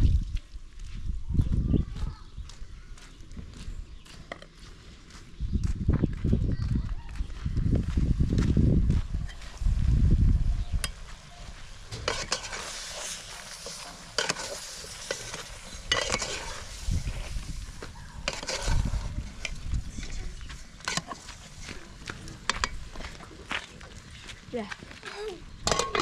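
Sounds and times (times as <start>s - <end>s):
food frying and sizzling: 9.0s - 23.3s
utensil scraping and clicking pot: 11.9s - 16.6s, 18.2s - 19.6s, 20.8s - 21.3s, 22.4s - 22.9s.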